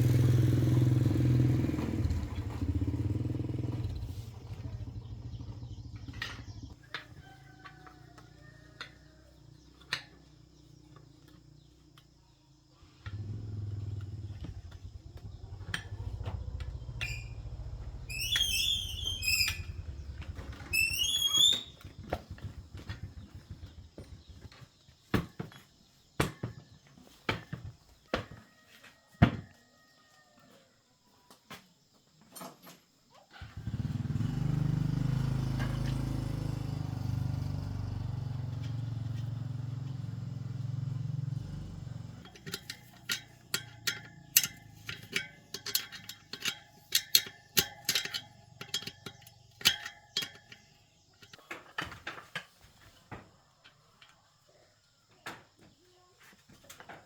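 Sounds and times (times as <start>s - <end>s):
metallic clicks and knocks: 42.1s - 52.6s
clicking and tapping: 42.2s - 52.0s.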